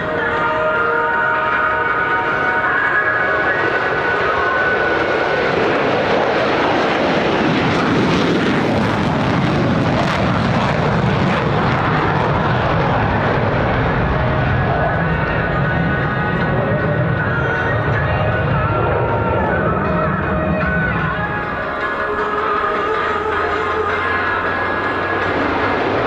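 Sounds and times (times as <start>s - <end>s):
fighter jets roaring past: 0.0s - 26.0s.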